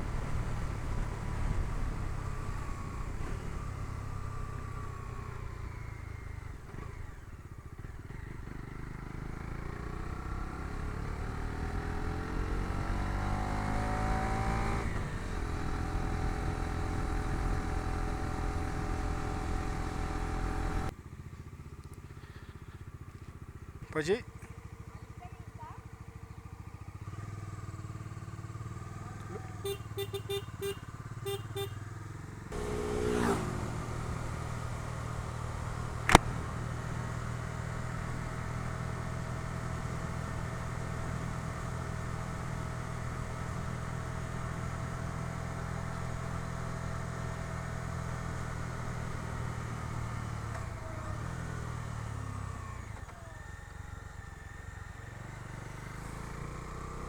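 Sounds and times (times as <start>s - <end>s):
motorcycle engine: 0.0s - 57.0s
sharp click: 36.0s - 36.4s.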